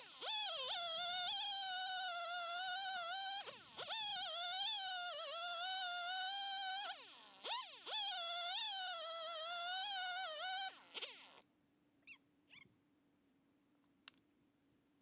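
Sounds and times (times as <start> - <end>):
chainsaw running at high revs: 0.0 - 11.4.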